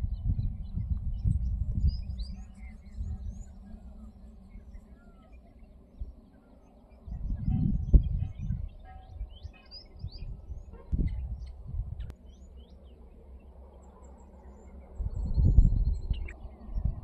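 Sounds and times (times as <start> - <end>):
wind buffeting microphone: 0.0 - 4.9, 6.9 - 12.1, 14.8 - 17.0
small birds chirping: 0.0 - 17.0.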